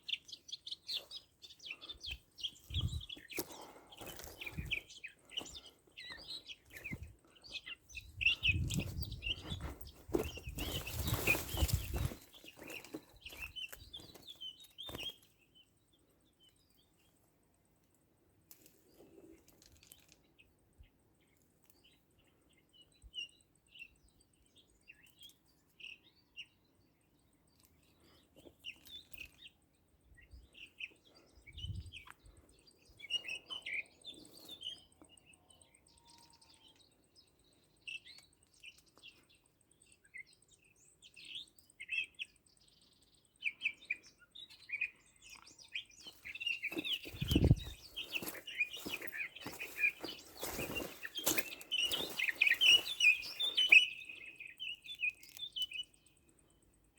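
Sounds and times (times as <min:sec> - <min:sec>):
songbirds chirping: 0:00.0 - 0:56.9.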